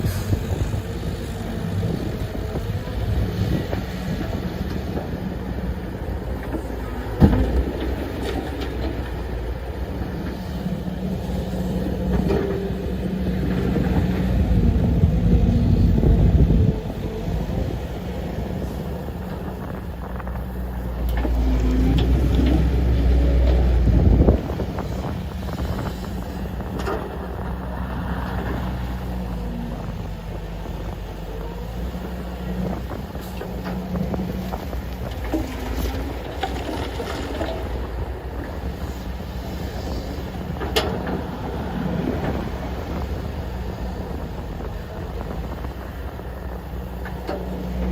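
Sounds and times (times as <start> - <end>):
diesel engine running: 0.0 - 47.9
knocks and clatter: 6.4 - 9.4.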